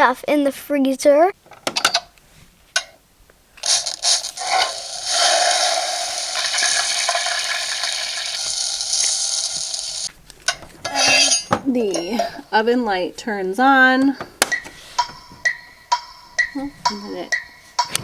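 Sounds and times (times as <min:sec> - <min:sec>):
toy speaker hissing noise: 0:03.6 - 0:10.1.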